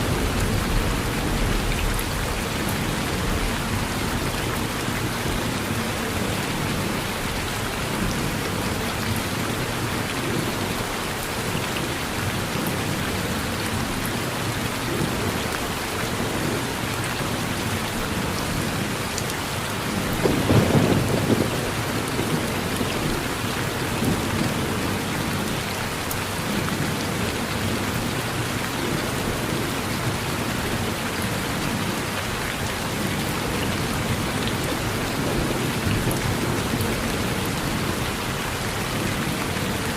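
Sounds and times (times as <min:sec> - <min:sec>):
low rumble of thunder: 0:00.0 - 0:07.2, 0:19.9 - 0:25.4
steady rain falling: 0:00.0 - 0:39.9.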